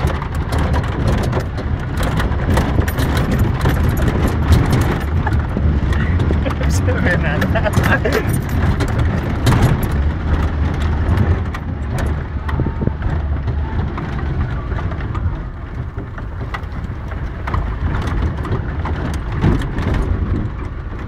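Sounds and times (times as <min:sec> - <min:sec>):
car body knocks and rattles: 0:00.0 - 0:21.0
car engine rumbling: 0:00.0 - 0:21.0.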